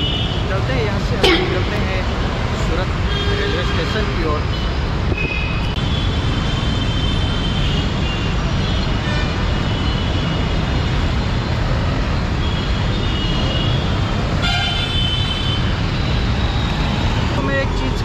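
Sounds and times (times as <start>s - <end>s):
road traffic rumble: 0.0s - 18.0s
vehicle horns honking: 1.2s - 4.8s, 14.4s - 15.6s.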